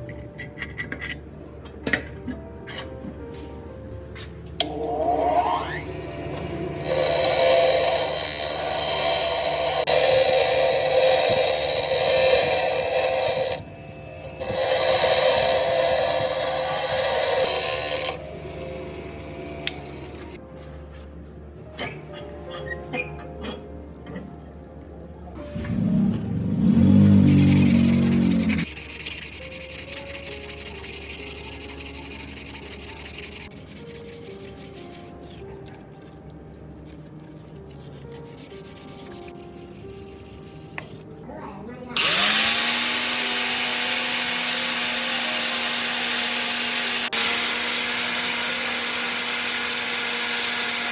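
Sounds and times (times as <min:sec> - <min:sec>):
power tool abrading metal: 0:05.7 - 0:20.4, 0:26.4 - 0:34.4, 0:42.0 - 0:50.9
rapid sanding strokes: 0:27.3 - 0:35.1, 0:37.6 - 0:41.0.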